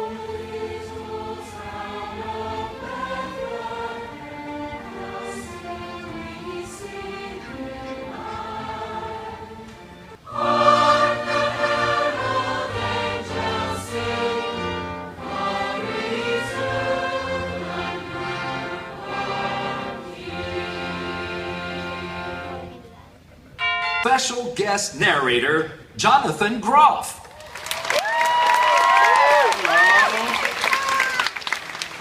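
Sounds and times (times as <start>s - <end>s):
choir singing with orchestra: 0.0s - 22.8s.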